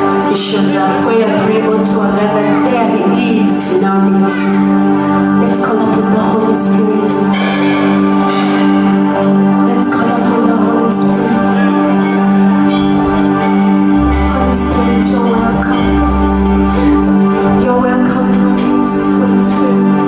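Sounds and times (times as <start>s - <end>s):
held keyboard chords: 0.0s - 20.0s
deep bass notes: 7.9s - 20.0s.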